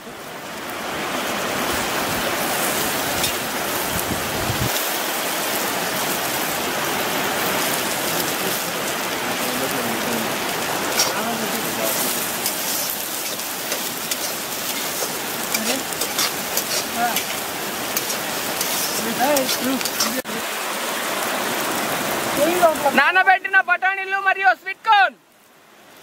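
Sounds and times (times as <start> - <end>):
vegetables sizzling in oil: 1.3 - 23.4.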